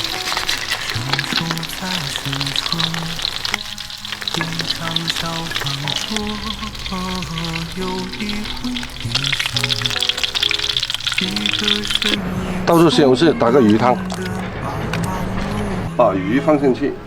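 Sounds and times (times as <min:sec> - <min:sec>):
food sizzling in hot oil: 0:00.0 - 0:12.2, 0:13.6 - 0:14.5
background music with melody: 0:00.0 - 0:17.0.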